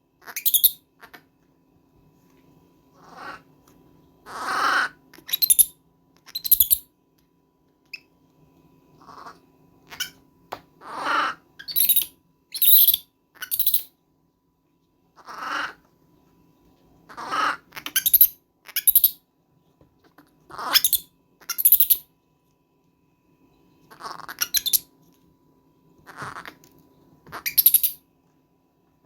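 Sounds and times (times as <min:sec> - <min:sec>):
baby monkey screaming: 0:00.2 - 0:01.1, 0:03.0 - 0:03.4, 0:04.3 - 0:05.7, 0:09.0 - 0:10.2, 0:10.8 - 0:13.9, 0:15.2 - 0:15.8, 0:17.1 - 0:19.2, 0:20.5 - 0:22.0, 0:23.9 - 0:24.9, 0:27.3 - 0:28.0.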